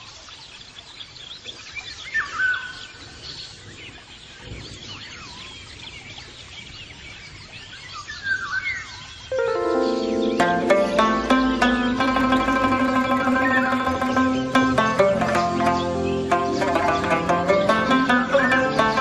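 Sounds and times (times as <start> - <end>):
birds chirping and warbling: 0.0 - 19.0
outdoor background hiss: 0.0 - 19.0
whistled bird call: 2.0 - 2.9.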